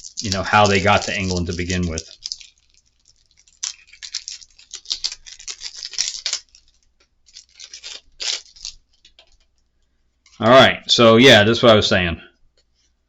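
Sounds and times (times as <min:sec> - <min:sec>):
board game pieces rustling: 0:00.0 - 0:09.6.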